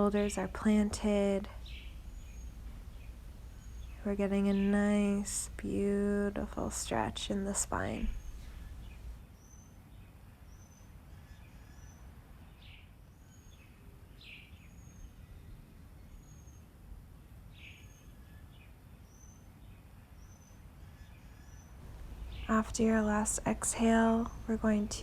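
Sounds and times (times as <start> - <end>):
faint low background noise: 0.0 - 25.0
bird chirping: 0.1 - 5.9, 21.9 - 25.0.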